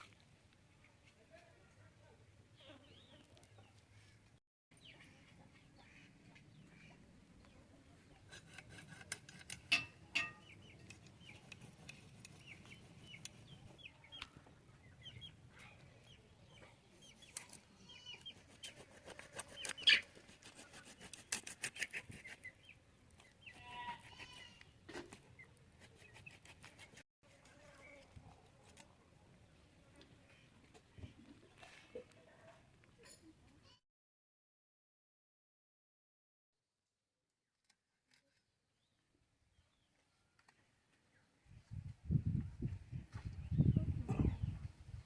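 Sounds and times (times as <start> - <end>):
chickens clucking: 16.0 - 20.3.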